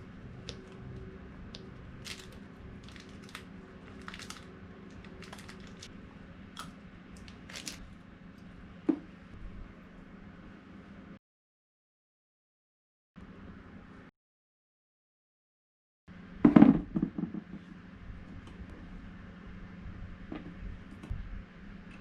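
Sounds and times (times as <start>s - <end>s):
steady low hum: 0.0s - 11.2s, 16.1s - 22.0s.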